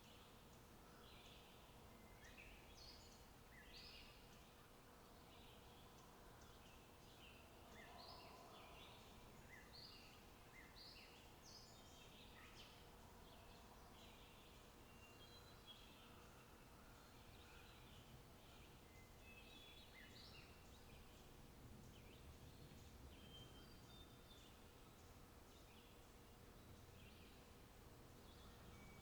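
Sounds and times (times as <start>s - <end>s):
low steady hiss: 0.0s - 29.0s.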